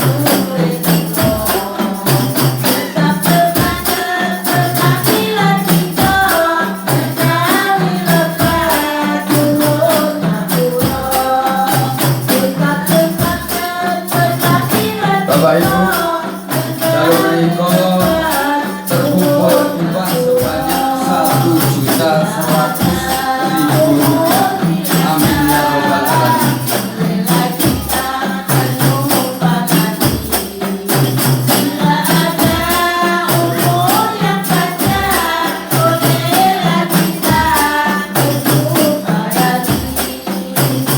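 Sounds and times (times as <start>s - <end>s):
frame drums with jingles: 0.0s - 40.9s
voices singing together: 0.0s - 40.9s.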